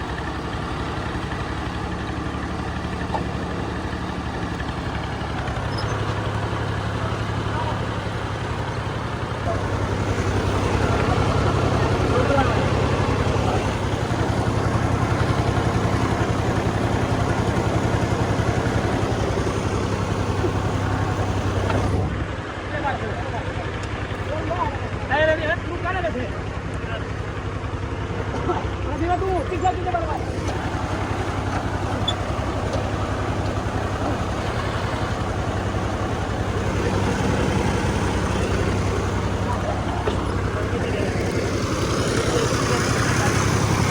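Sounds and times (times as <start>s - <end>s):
diesel tractor engine humming: 0.0s - 43.9s
thresher rushing noise: 9.5s - 22.2s.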